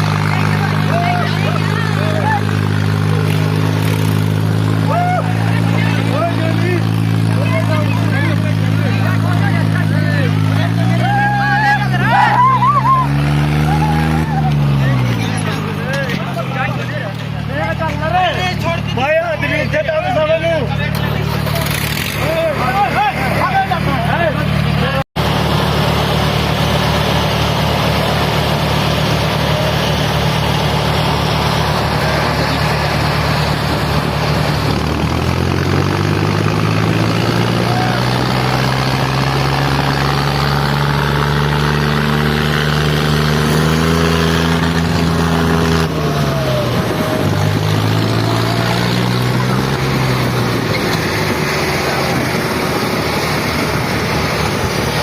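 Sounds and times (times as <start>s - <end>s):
diesel tractor engines running hard: 0.0s - 55.0s.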